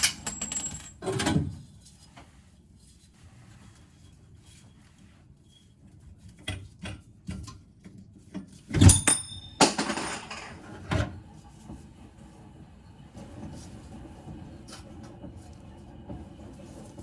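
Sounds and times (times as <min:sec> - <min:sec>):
metallic clank ringing: 0:08.9 - 0:10.5.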